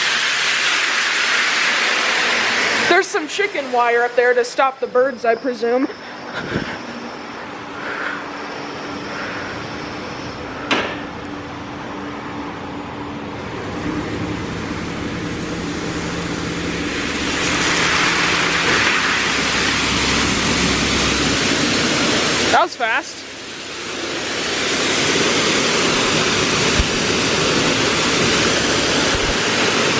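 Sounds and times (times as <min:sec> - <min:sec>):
car wash motor hum: 0:00.0 - 0:29.9
water spray hitting car: 0:17.1 - 0:22.6, 0:23.4 - 0:29.9.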